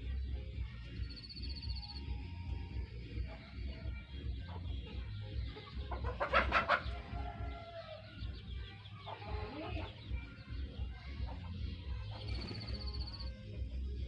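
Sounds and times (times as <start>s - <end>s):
bird harsh clucking calls: 2.9s - 13.4s.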